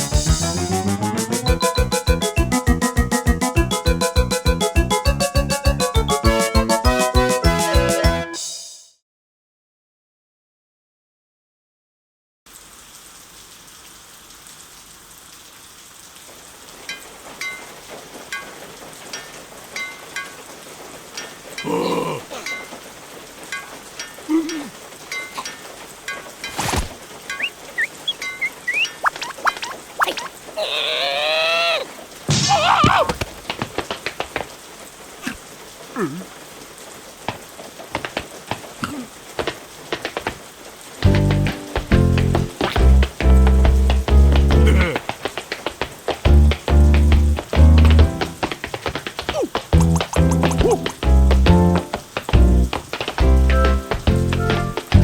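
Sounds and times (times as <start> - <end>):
hiss of falling rain: 0.0 - 8.2, 12.5 - 55.0
water drops plinking: 23.5 - 30.4
squeaky cartoon voice: 27.4 - 31.8.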